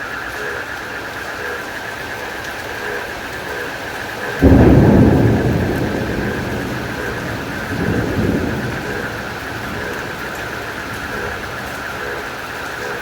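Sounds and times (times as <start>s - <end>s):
steady rain: 0.0s - 13.0s
insects chirring: 0.1s - 13.0s
thunder rumbling: 3.3s - 13.0s.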